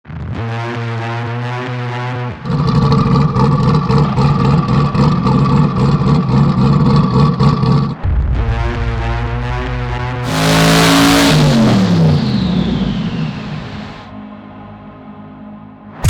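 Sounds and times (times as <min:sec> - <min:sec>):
car engine running loud and rough: 0:02.4 - 0:08.1, 0:10.2 - 0:14.1.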